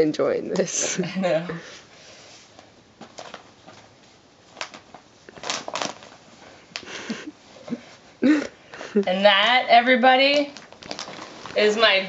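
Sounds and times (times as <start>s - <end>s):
wrapping paper crinkling: 2.6s - 7.8s, 10.4s - 12.0s.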